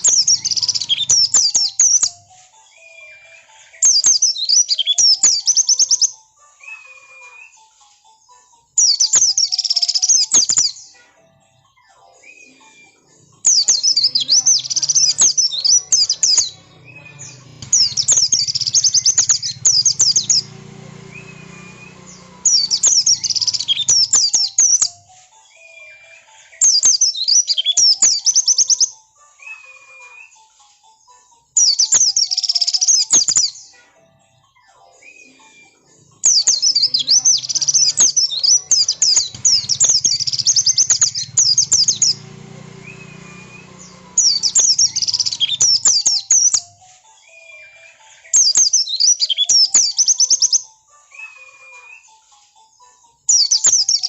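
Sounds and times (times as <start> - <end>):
bird rapid high twittering: 0.0 - 7.5, 8.8 - 10.9, 13.3 - 28.9, 31.6 - 33.7, 36.2 - 50.6, 53.3 - 54.0.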